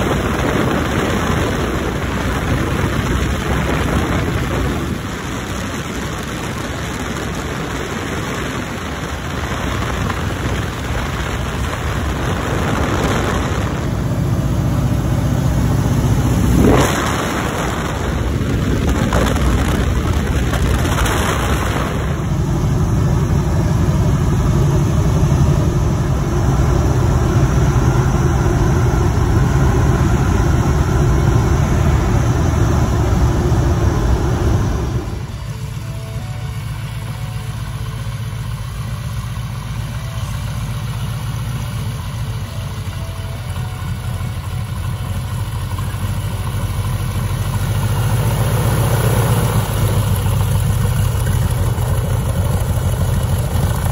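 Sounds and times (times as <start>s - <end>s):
wind buffeting microphone: 0.0s - 22.8s
loud swoosh: 0.0s - 36.1s
propeller plane engine drone: 0.0s - 53.9s.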